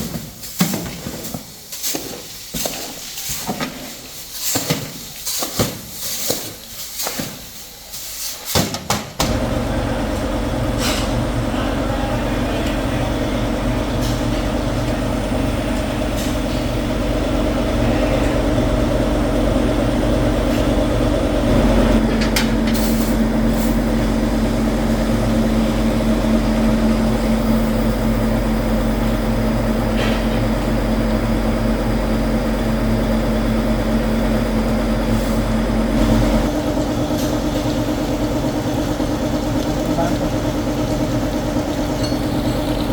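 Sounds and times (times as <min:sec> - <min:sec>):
heavy factory machinery drone: 0:09.2 - 0:42.9.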